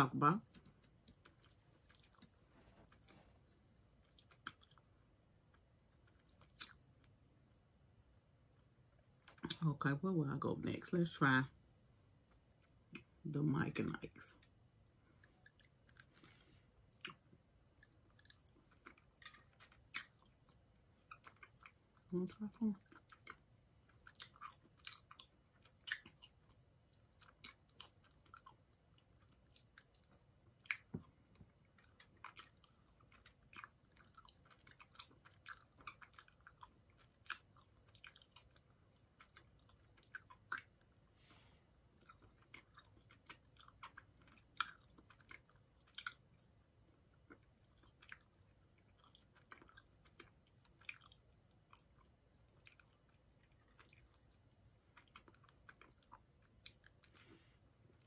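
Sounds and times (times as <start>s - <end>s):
chewing candy mouth clicks: 17.0s - 21.8s, 22.9s - 26.6s.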